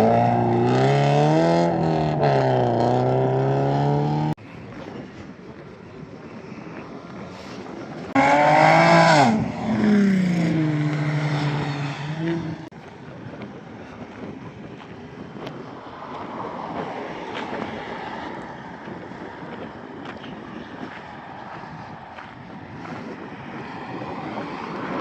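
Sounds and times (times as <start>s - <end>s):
car engine passing by: 8.1s - 12.7s.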